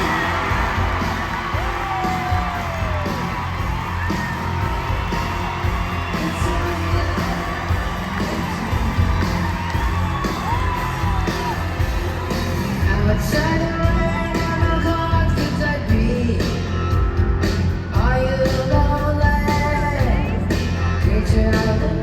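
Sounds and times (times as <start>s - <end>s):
audience whooping and yelling: 0.0s - 14.7s
live rock band playing: 0.0s - 22.0s.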